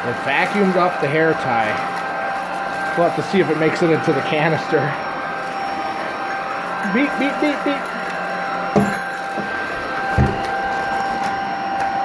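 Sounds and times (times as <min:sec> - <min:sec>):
vacuum cleaner motor whine: 0:00.0 - 0:12.0
dull thumps: 0:08.8 - 0:09.5, 0:10.2 - 0:10.6.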